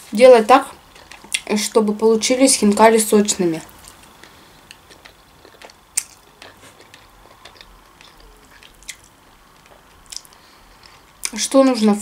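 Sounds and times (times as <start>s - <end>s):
person chewing food: 0.8s - 1.5s, 3.7s - 11.4s.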